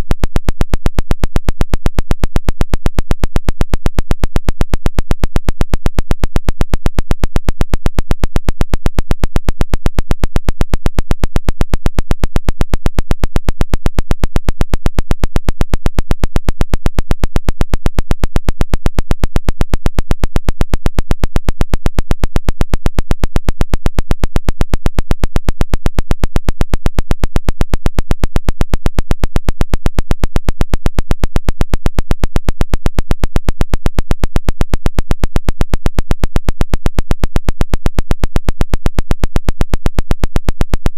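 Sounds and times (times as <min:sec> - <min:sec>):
rapid pulsed tapping signal: 0:00.0 - 0:40.9.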